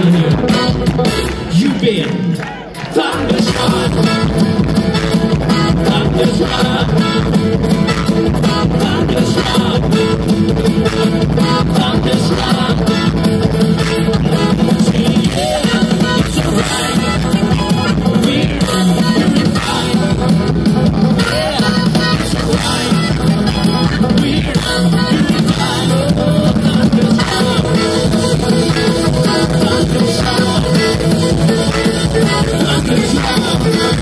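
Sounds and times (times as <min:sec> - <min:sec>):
drum kit: 0:00.0 - 0:34.0
live bluegrass band playing: 0:00.0 - 0:34.0.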